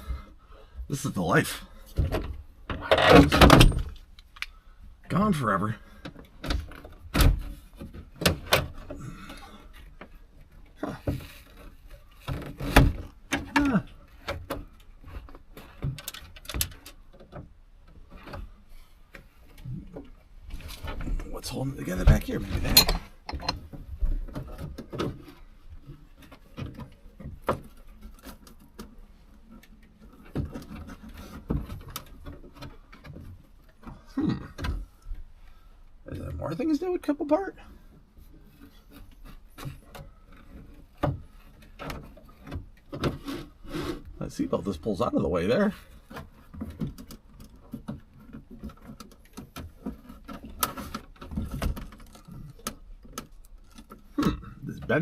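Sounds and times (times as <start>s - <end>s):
plastic trim clicks and creaks: 6.0s - 21.3s, 45.4s - 55.0s
hands pulling plastic trim: 45.7s - 55.0s.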